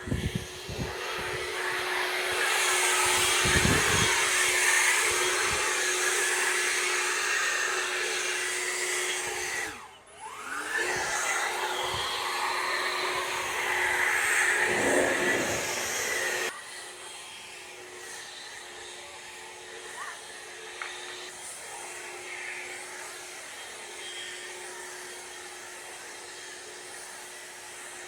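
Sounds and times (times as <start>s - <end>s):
pressure washer motor hum: 9.4s - 16.5s
pressure washer spraying water: 13.3s - 16.5s.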